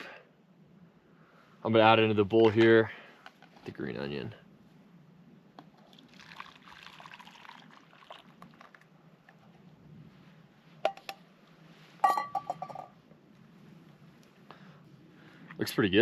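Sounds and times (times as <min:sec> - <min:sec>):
soup pouring into a bowl: 0:05.8 - 0:08.9.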